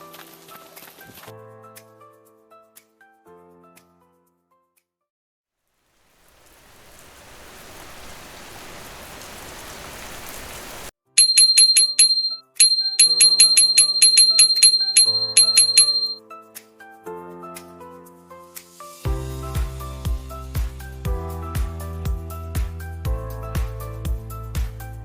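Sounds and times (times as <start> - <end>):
steady hiss: 5.8 - 10.9
bell-like dings: 11.2 - 16.2.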